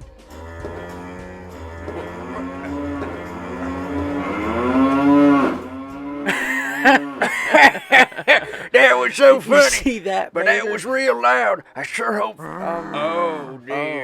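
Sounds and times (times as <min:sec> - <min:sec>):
cow-like mooing: 0:00.0 - 0:07.3, 0:12.4 - 0:13.6.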